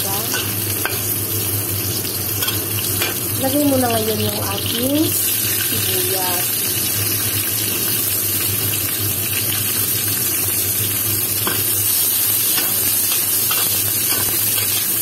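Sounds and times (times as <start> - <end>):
vegetables sizzling in hot oil: 0.0 - 15.0.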